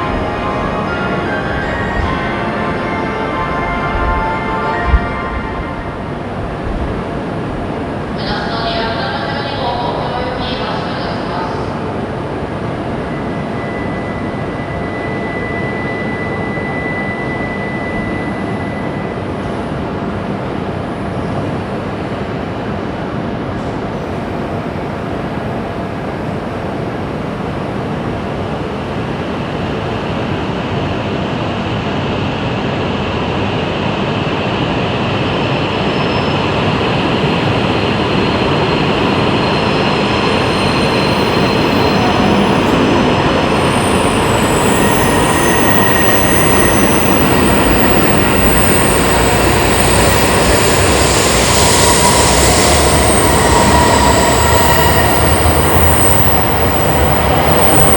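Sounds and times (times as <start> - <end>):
bullet train rumble and rush: 0.0 - 57.9
high whining and squealing: 12.3 - 19.8, 35.2 - 57.9.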